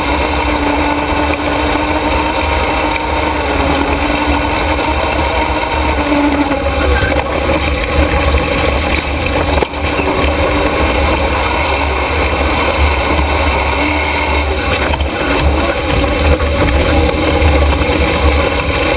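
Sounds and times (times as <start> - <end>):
truck engine rumbling: 0.0 - 18.9.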